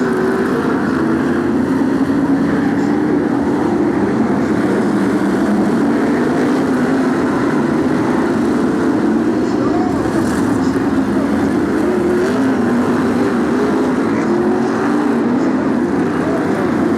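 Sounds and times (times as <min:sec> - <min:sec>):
many race car engines droning: 0:00.0 - 0:16.9.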